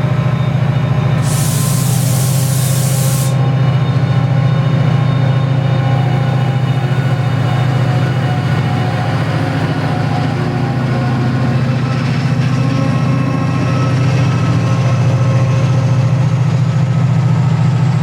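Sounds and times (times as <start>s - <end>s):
diesel locomotive engine throbbing: 0.0s - 18.0s
air hiss: 1.2s - 3.4s.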